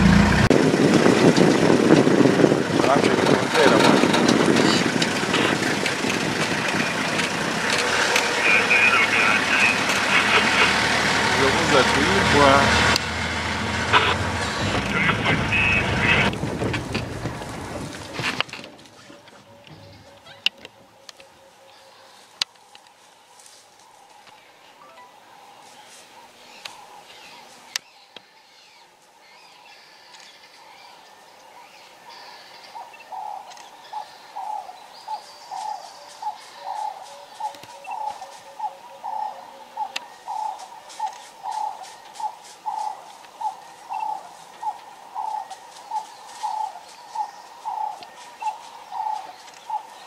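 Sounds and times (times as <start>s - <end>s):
birds chirping: 1.8s - 50.0s
bird low hooting: 31.6s - 50.0s.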